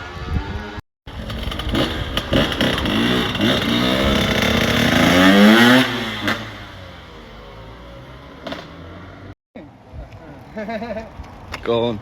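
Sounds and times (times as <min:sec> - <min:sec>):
motorcycle engine revving: 0:01.1 - 0:09.4.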